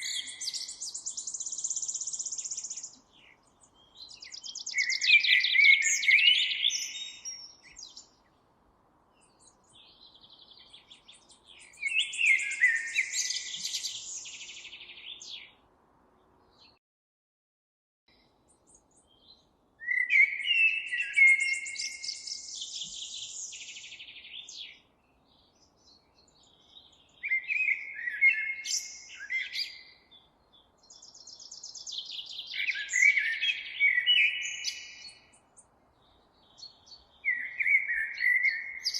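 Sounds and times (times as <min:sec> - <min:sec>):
songbird chirps and trills: 0:00.0 - 0:16.8, 0:18.1 - 0:38.9.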